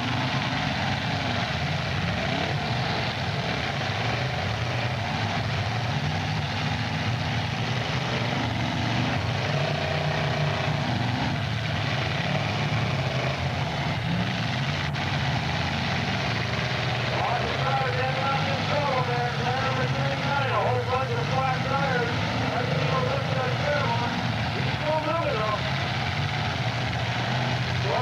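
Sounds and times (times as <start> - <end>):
car engines revving: 0.0 - 28.0.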